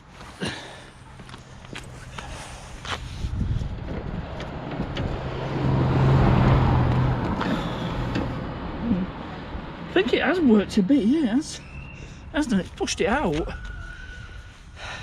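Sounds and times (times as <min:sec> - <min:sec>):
vehicle driving past: 0:03.6 - 0:10.0.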